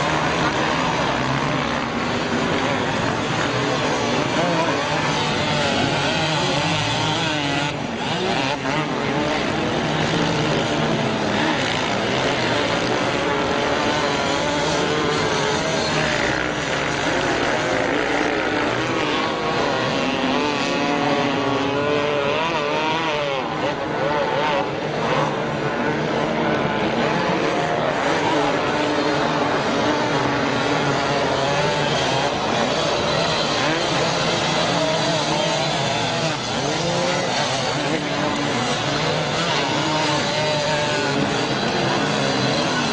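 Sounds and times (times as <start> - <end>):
racing motorcycle engines revving: 0.0 - 42.9.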